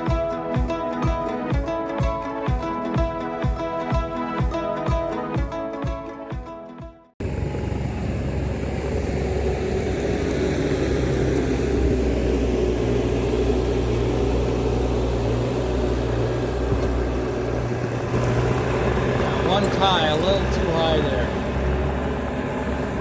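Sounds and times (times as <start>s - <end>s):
diesel engine running steadily: 7.2s - 23.0s.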